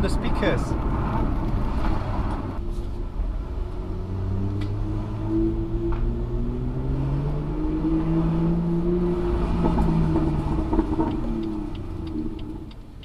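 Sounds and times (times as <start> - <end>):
exhaust crackle: 0.0 - 13.0
car exhaust engine note: 2.4 - 12.8.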